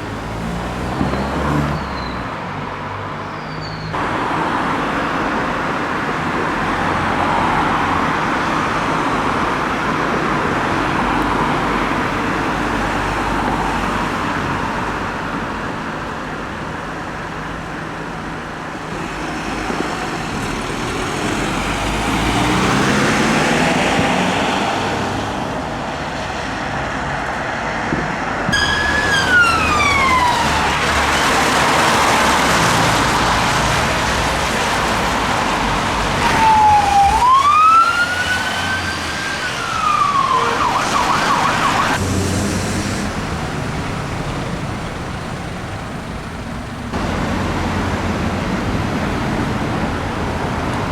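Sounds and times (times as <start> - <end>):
road traffic noise: 0.0 - 50.9
police siren wailing: 28.5 - 32.5, 36.2 - 42.0.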